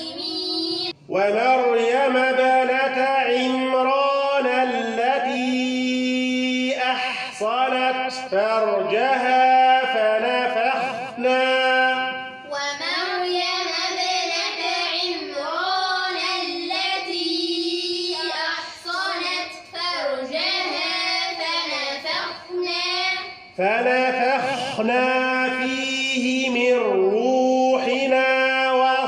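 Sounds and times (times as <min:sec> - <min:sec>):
man reciting: 0:00.9 - 0:12.5, 0:23.5 - 0:29.0
children chanting together: 0:12.5 - 0:23.5.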